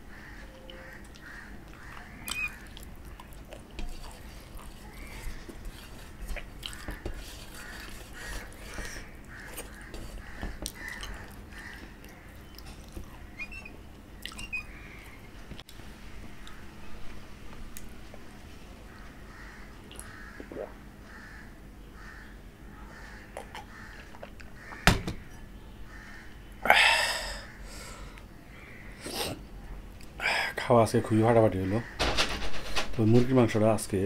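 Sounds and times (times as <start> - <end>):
chewing and mouth smacks: 1.1 - 13.2, 14.2 - 14.5.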